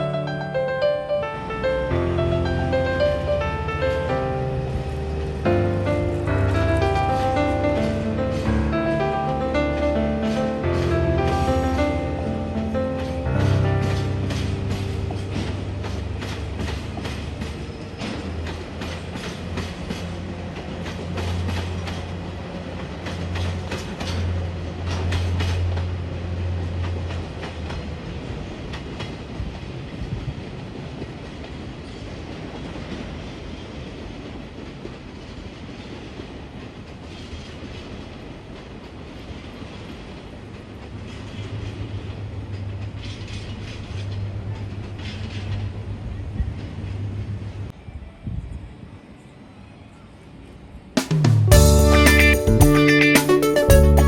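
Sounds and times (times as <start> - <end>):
train wheels clacking over rail joints: 10.1 - 29.8, 31.0 - 45.8.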